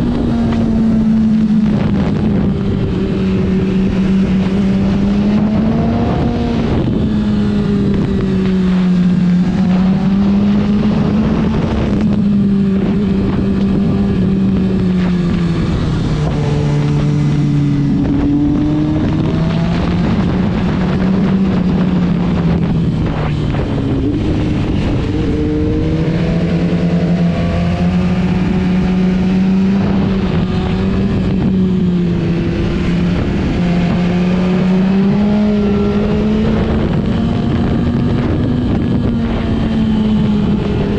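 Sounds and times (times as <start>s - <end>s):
motorcycle engine revving: 0.0s - 40.9s
rushing air: 13.8s - 37.1s.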